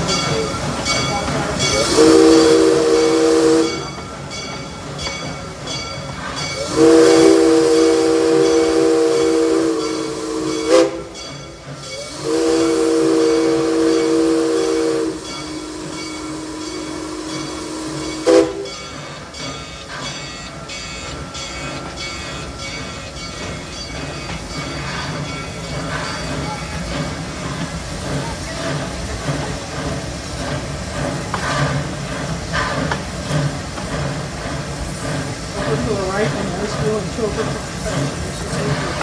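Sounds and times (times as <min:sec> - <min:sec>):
locomotive chime whistle: 0:00.0 - 0:28.8.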